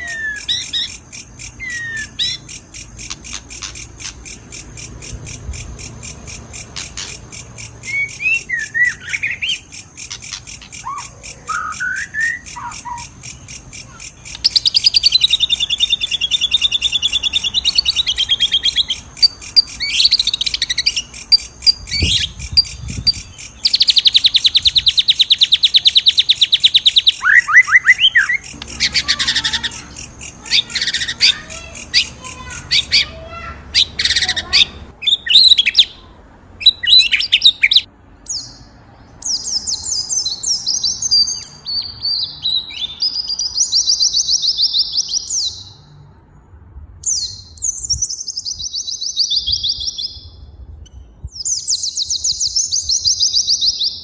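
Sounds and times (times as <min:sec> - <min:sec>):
buzzy bird chattering: 0:00.0 - 0:38.5
fast bird trill: 0:00.0 - 0:38.6
songbirds singing and chirping: 0:00.0 - 0:54.0.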